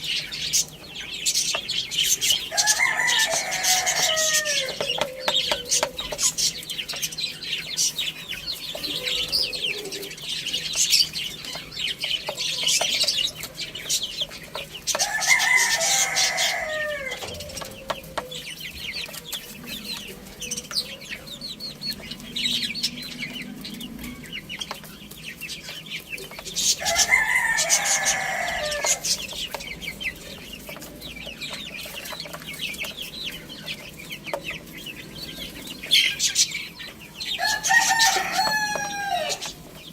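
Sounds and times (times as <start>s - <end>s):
hens clucking: 0.0s - 39.9s
small birds chirping: 0.0s - 39.9s
rooster crowing: 2.4s - 5.8s, 14.9s - 18.3s, 26.6s - 29.3s, 37.2s - 39.6s.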